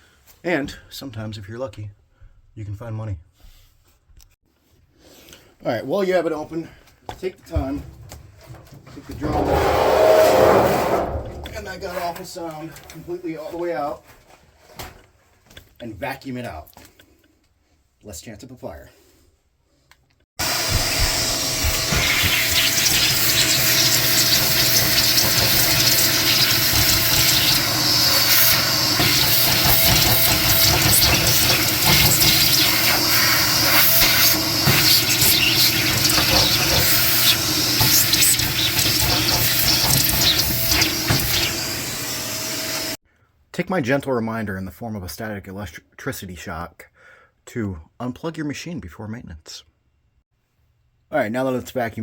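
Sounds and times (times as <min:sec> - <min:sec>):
vacuum cleaner running: 0:09.2 - 0:11.7, 0:20.4 - 0:43.0.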